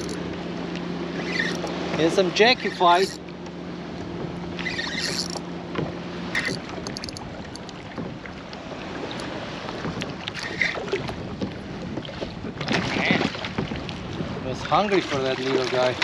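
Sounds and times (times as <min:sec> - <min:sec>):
water moving around kayak: 0:00.0 - 0:16.0
wind on microphone: 0:04.0 - 0:16.0.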